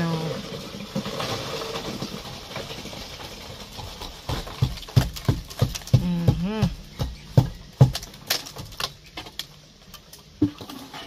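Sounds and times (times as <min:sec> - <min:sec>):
concrete rushing scrape: 0:00.2 - 0:06.0.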